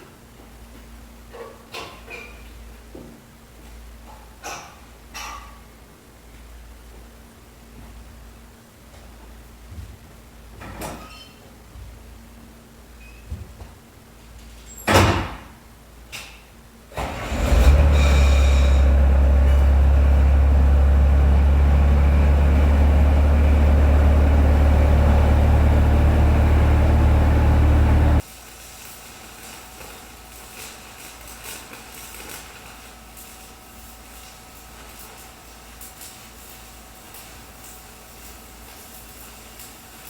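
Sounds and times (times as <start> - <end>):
skid steer engine idling: 17.1 - 28.2.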